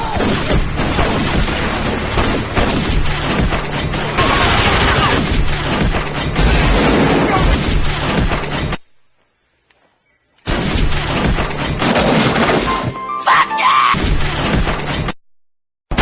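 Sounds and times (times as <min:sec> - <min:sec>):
gunfire volley: 0:04.2 - 0:08.5, 0:10.5 - 0:13.0
booms and crashes: 0:04.2 - 0:08.8, 0:10.5 - 0:12.9.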